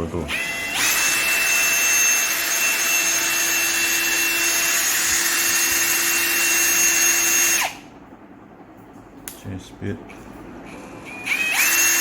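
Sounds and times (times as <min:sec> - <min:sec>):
cordless drill whining: 0:00.3 - 0:07.8, 0:11.1 - 0:12.0.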